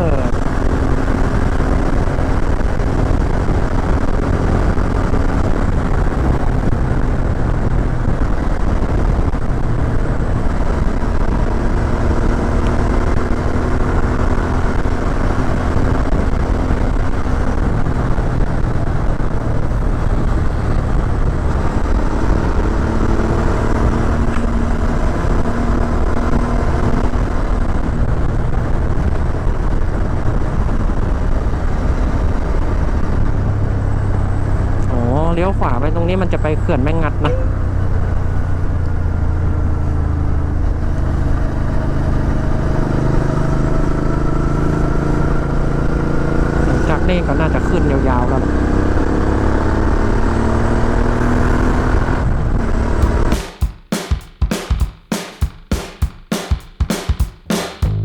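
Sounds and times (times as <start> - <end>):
motorcycle engine running: 52.8 - 58.0.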